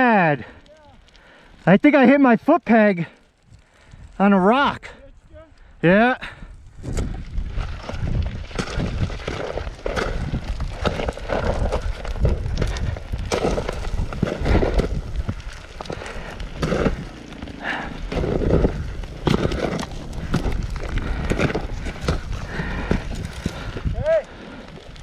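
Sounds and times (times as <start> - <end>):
microphone handling rumble: 6.7 - 24.1
footsteps crunching on rock and dirt: 6.8 - 25.0.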